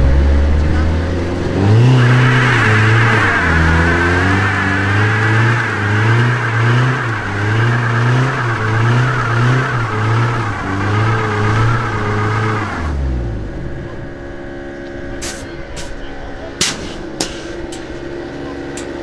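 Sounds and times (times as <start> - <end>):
car engine revving: 0.0 - 13.7.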